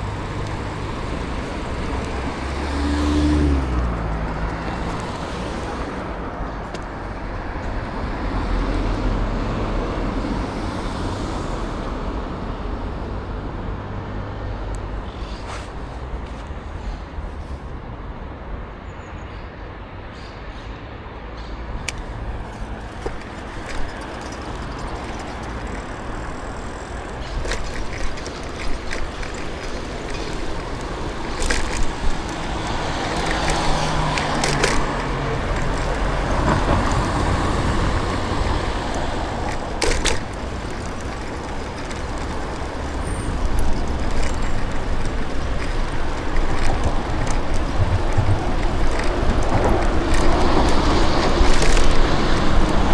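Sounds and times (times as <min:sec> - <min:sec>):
rumble of passing cars: 0:00.0 - 0:52.9
sharp clicks: 0:21.8 - 0:52.9.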